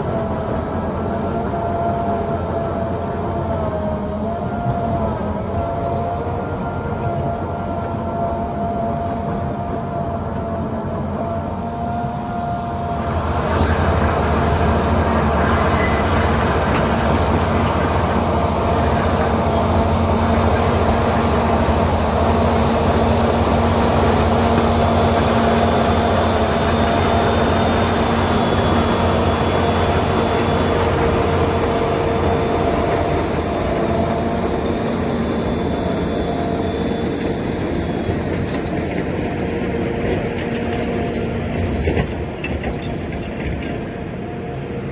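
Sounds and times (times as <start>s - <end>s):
diesel engine rumbling: 0.0s - 44.9s
steel tracks clattering: 12.1s - 44.9s
thin high whining tones: 14.8s - 41.6s.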